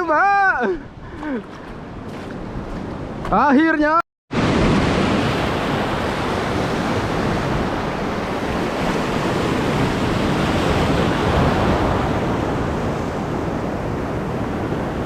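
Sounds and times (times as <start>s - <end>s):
wind buffeting the microphone: 0.0s - 3.4s
sea surf over a reef: 0.0s - 15.0s.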